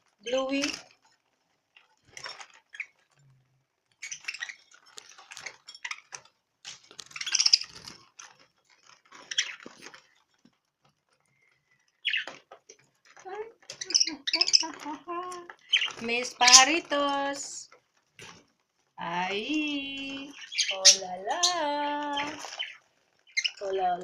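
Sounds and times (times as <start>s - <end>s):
small birds squawking and chattering: 0.2s - 0.8s, 2.1s - 3.2s, 3.9s - 10.1s, 11.3s - 18.4s, 19.0s - 24.0s.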